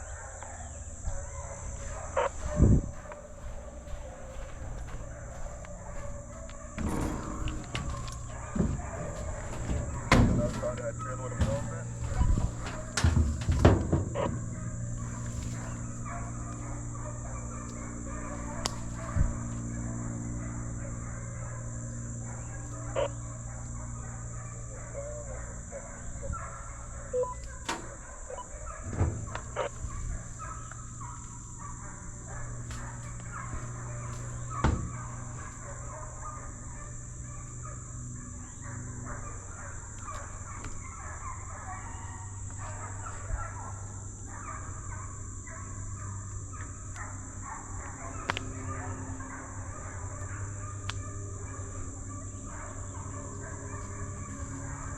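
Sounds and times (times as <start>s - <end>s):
high whine: 0.0s - 41.5s
distant animal calls: 0.0s - 54.9s
low mechanical hum: 0.0s - 54.9s
knocks: 1.8s - 15.8s, 28.8s - 29.7s, 33.5s - 35.4s.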